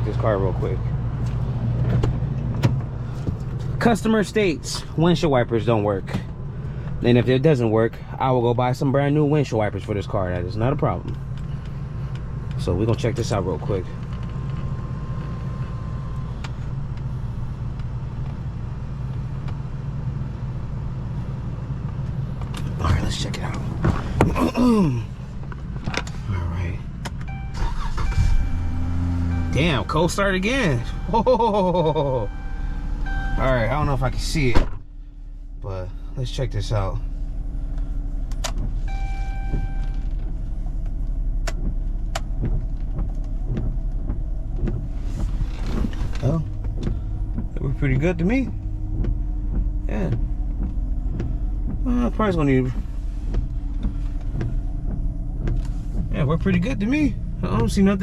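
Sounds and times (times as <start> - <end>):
car engine idling: 0.0 - 58.0
windshield wiper motor: 22.6 - 26.2, 37.7 - 58.0
held electronic beep: 27.3 - 33.9, 38.9 - 40.0.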